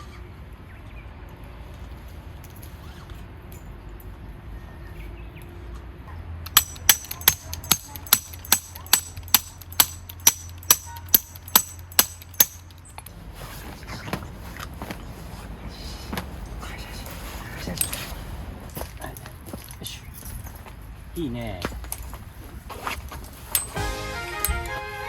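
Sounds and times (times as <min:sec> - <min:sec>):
hammer striking metal stake: 0:06.5 - 0:13.0, 0:23.6 - 0:24.7.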